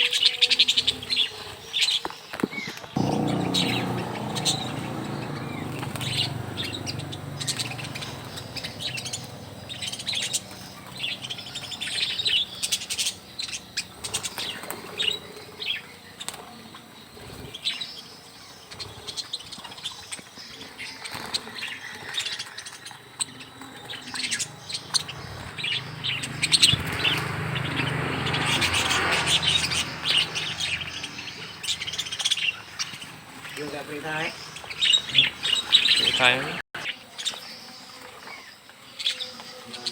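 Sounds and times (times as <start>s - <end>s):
wings fluttering: 2.4s - 17.8s, 21.0s - 36.1s
budgerigars chirping: 3.0s - 16.8s, 22.7s - 36.6s.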